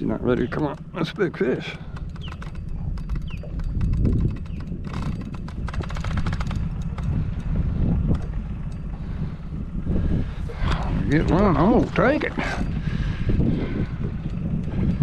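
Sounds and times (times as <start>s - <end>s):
wind buffeting microphone: 0.0s - 15.0s
small clicks and knocks: 0.4s - 7.5s.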